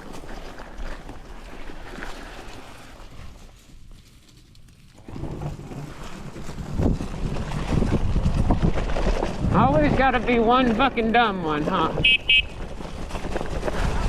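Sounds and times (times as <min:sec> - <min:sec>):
wind buffeting microphone: 0:05.1 - 0:14.0.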